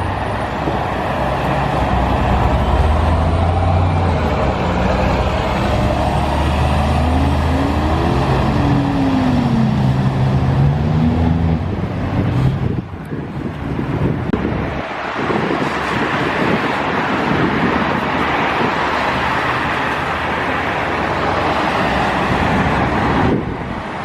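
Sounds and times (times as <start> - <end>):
heavy vehicle humming: 0.0 - 15.7.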